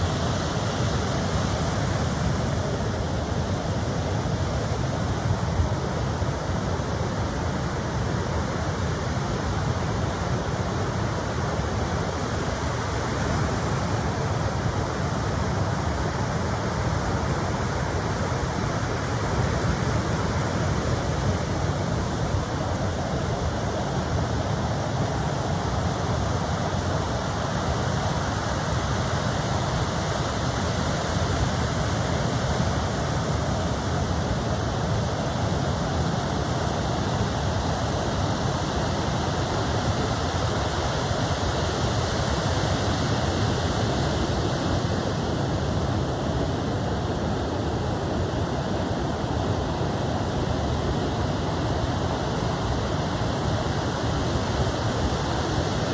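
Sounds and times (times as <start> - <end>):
ocean surf rushing: 0.0 - 55.9.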